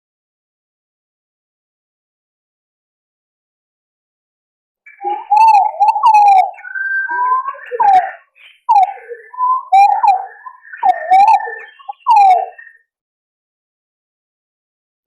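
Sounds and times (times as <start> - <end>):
pigeons calling: 4.9 - 12.8.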